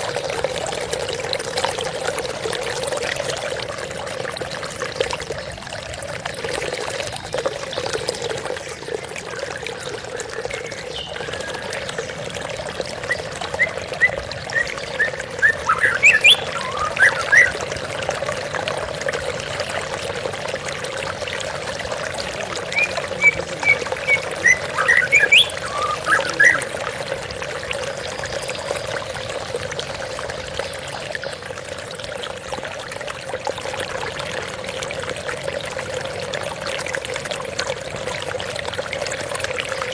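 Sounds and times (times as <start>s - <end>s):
flowing water: 0.0s - 39.9s
bird singing whistled phrases: 13.0s - 17.6s, 22.7s - 26.7s.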